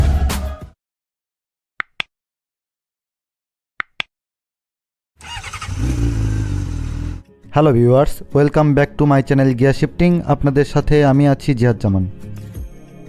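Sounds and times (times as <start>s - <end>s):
motorcycle engine running: 5.2s - 7.2s.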